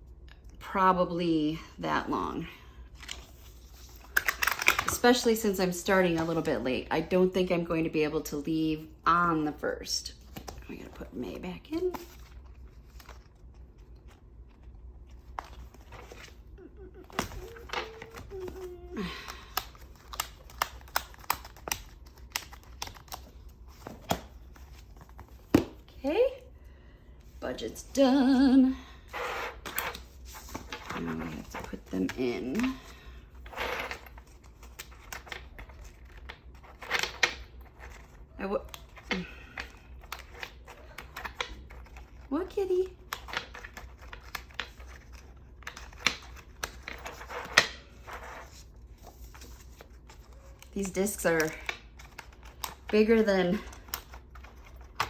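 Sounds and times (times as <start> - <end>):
pages clicking onto binder discs: 3.0 - 5.1, 17.0 - 25.7
paper rustling: 11.8 - 25.7, 43.4 - 52.7.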